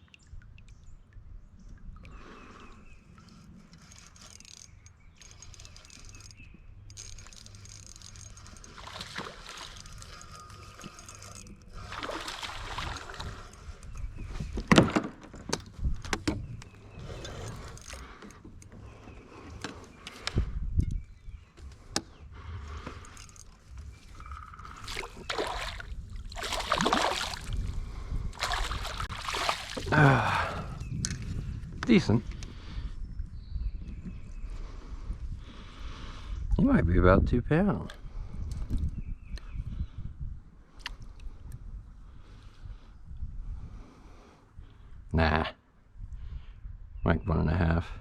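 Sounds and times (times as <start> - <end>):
water noise: 0.0 - 14.7, 22.7 - 31.2
small rattling clatters: 3.7 - 11.6.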